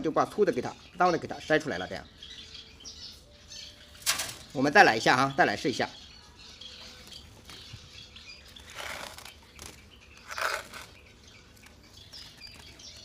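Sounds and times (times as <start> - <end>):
faint bird chirps: 0.0 - 13.0
bird wings fluttering: 8.5 - 11.0.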